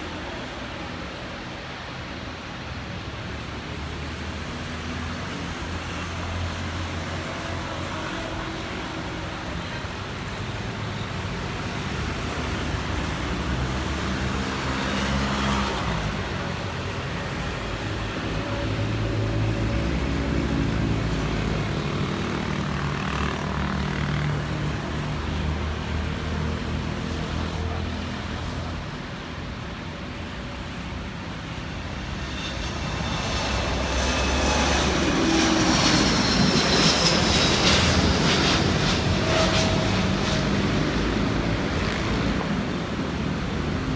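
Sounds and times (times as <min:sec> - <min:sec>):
jet engine rumble: 0:13.0 - 0:43.9
high jet whine: 0:13.1 - 0:43.9.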